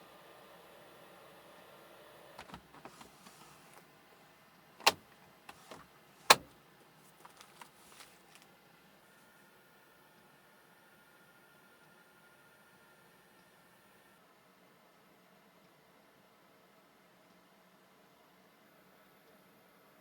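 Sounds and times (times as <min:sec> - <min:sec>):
light clicks and knocks: 0:02.4 - 0:03.8, 0:04.8 - 0:06.5.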